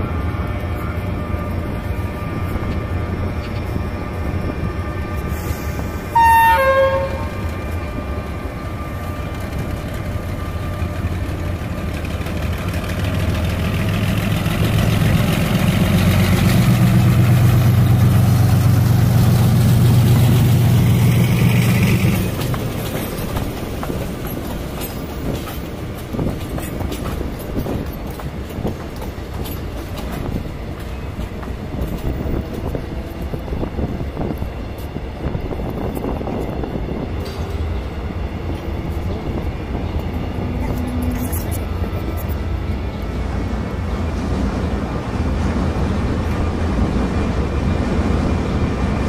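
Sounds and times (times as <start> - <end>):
locomotive engine humming: 0.0 - 49.0
train horn blast: 6.1 - 7.6.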